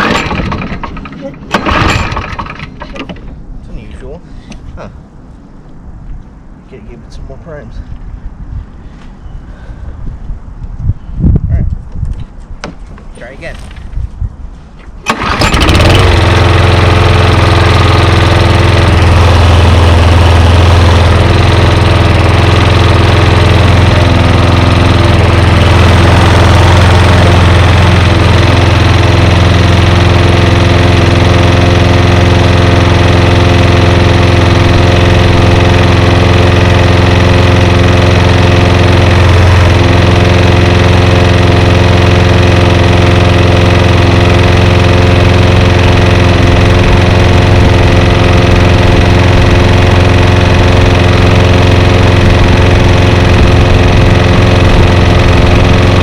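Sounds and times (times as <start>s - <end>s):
lawn mower engine pull-started: 0.0s - 3.5s, 14.8s - 56.0s.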